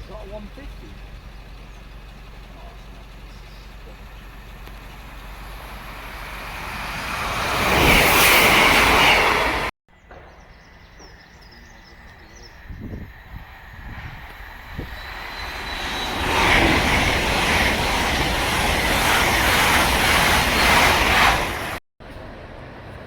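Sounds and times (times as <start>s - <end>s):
train rushing and rumbling: 0.0s - 23.0s.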